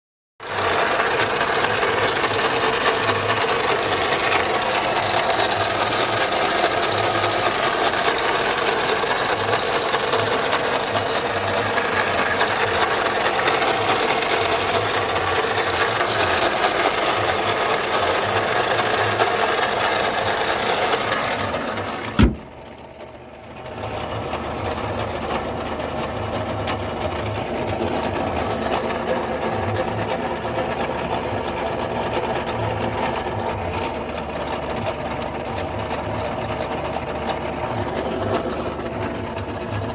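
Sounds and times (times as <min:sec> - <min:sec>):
compressor rattling: 0:00.4 - 0:23.0
car engine running: 0:00.4 - 0:39.9.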